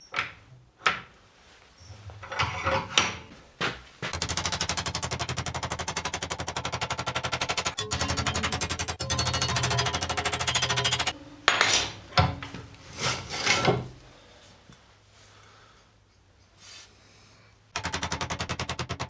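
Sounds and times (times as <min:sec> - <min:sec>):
machine pulsing: 0:04.2 - 0:11.1.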